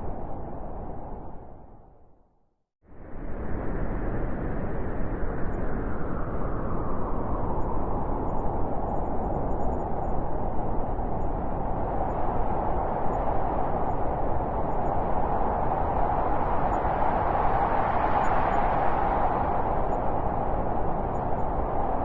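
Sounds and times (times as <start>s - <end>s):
blizzard wind rushing: 0.0s - 2.0s, 2.9s - 22.0s
wind howling: 0.0s - 2.2s, 3.0s - 22.0s.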